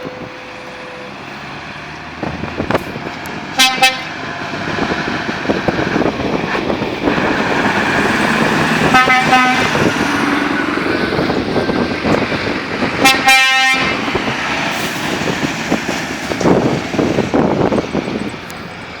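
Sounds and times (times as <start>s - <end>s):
truck engines rumbling: 0.0s - 19.0s
truck horn blasts: 3.6s - 4.3s, 8.0s - 11.9s, 12.8s - 14.2s.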